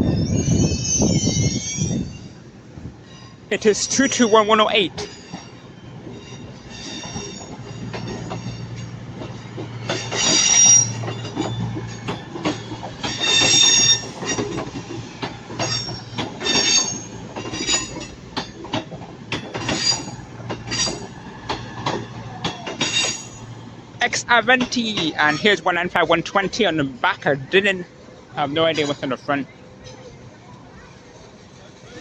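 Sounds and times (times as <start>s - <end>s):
train wheels squealing: 0.0s - 2.4s, 3.0s - 18.7s, 19.4s - 23.6s
wheels clicking over rail joints: 3.1s - 27.8s.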